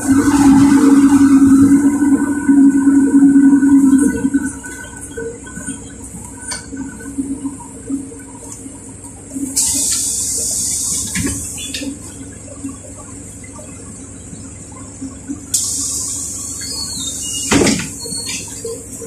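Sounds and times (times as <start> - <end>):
bus low hum: 0.0 - 19.0.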